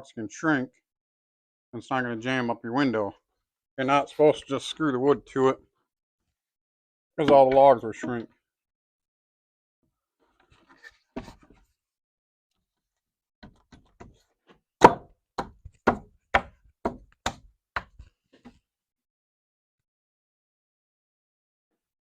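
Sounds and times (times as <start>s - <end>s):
hammer knocking on wood: 14.8s - 17.9s.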